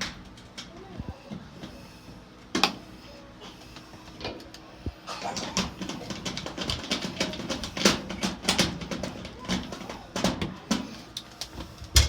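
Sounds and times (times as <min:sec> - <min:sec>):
clicks and rattles of sheet metal: 0:04.1 - 0:12.0.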